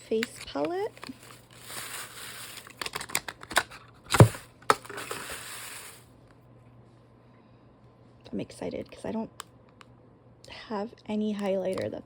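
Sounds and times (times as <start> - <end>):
packaging crinkling: 0.0 - 6.0.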